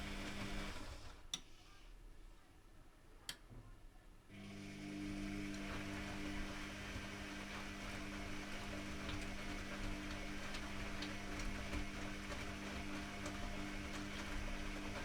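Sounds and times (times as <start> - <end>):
washing machine running: 0.0 - 1.1, 4.3 - 15.0.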